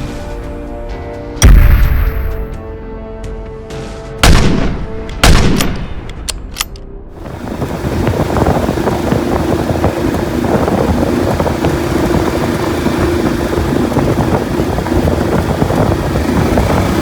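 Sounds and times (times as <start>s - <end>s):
boat motor running: 7.1s - 17.0s
wind buffeting microphone: 7.2s - 17.0s.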